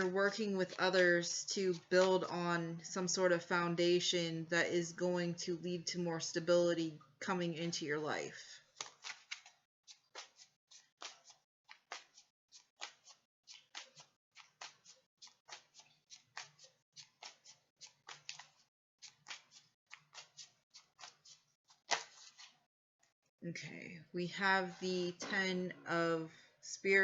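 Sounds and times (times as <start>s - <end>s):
cards being shuffled: 8.7s - 22.6s.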